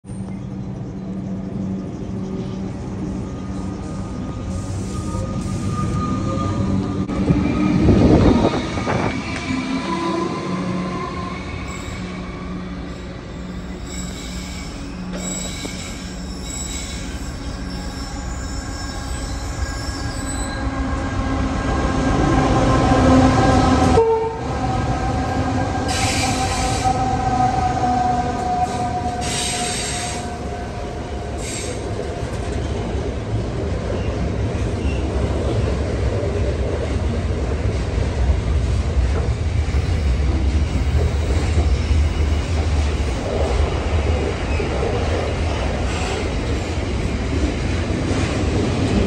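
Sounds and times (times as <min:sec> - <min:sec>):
diesel locomotives passing: 0:00.1 - 0:49.0
wheel squeals: 0:13.3 - 0:20.7.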